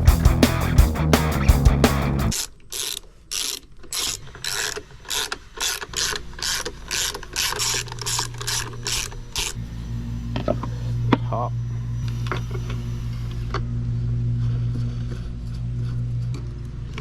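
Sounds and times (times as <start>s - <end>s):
background music: 0.0s - 2.4s
ratchet wrench clicking: 2.3s - 9.6s.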